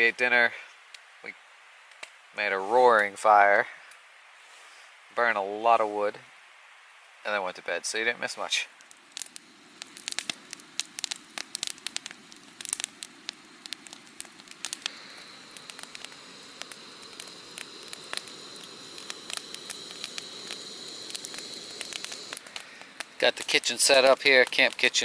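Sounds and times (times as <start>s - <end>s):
campfire crackling and popping: 0.8s - 1.2s, 1.8s - 2.3s, 6.4s - 25.0s.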